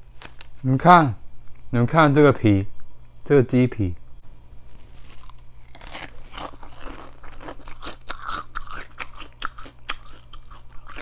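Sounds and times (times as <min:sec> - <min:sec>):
crunchy chewing: 0:00.0 - 0:00.7, 0:04.7 - 0:11.0.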